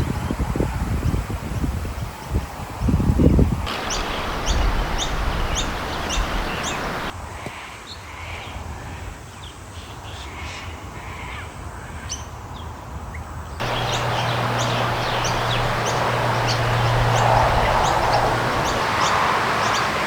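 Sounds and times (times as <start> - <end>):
birds chirping: 3.7 - 7.1, 13.6 - 20.0
rushing hiss: 3.7 - 7.1, 13.6 - 20.0
steady low hum: 13.6 - 20.0.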